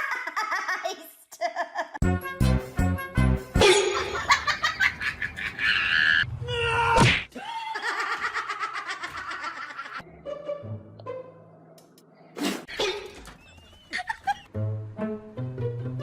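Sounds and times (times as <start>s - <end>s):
person laughing: 3.6s - 6.2s, 7.3s - 10.0s, 13.8s - 14.5s.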